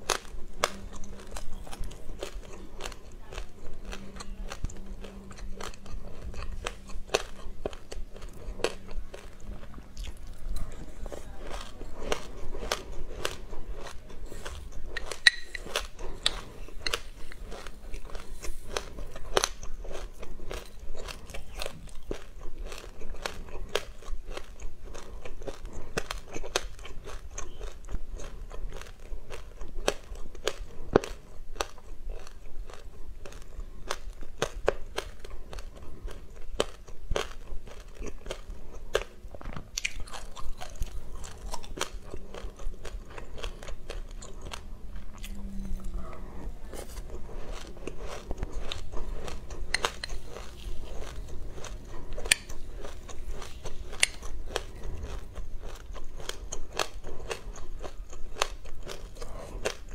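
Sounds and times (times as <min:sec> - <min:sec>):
chewing crunchy seeds: 0:00.0 - 0:59.9.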